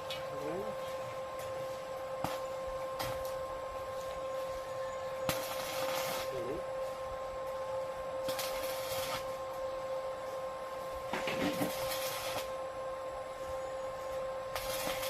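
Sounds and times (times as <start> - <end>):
welding hiss: 0.0 - 9.6, 10.2 - 12.7, 13.3 - 15.0
welding machine humming: 0.0 - 15.0.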